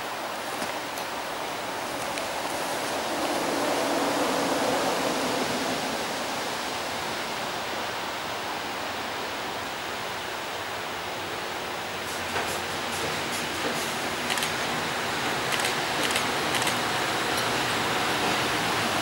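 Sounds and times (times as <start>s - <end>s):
train rushing noise: 0.0s - 8.6s, 11.2s - 19.0s
sharp clicks: 15.5s - 16.8s.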